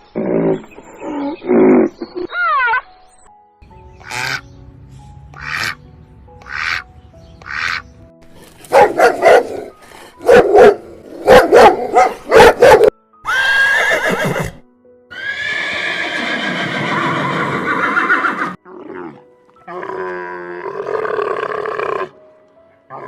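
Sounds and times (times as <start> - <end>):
horse neighing: 13.2 - 22.1.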